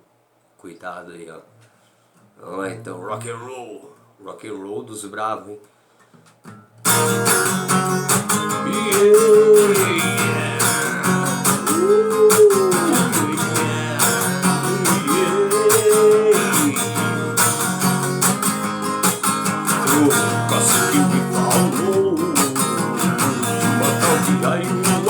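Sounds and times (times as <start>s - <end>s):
strummed guitar chords: 6.8s - 25.0s
rock song instrumental: 6.9s - 25.0s.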